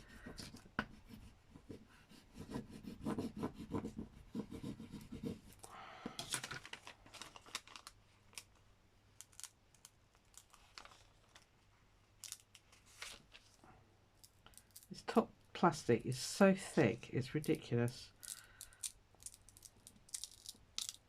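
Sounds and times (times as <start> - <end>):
crinkly rustle: 6.2 - 8.6, 10.2 - 13.6.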